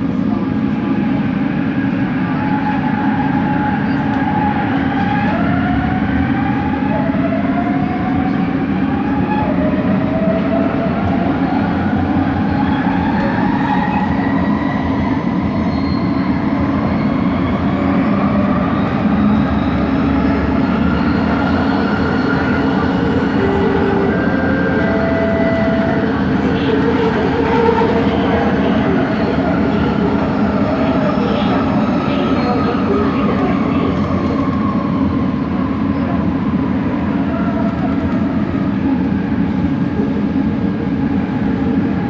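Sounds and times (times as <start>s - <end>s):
train running rumble: 0.0s - 42.0s.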